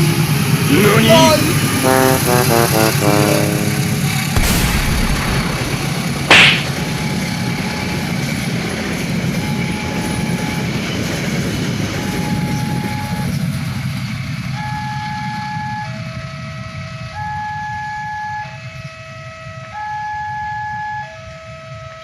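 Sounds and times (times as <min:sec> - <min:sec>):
train rumbling past: 0:00.0 - 0:14.8
faint long held notes: 0:00.7 - 0:06.1
train horn blast: 0:00.8 - 0:06.7.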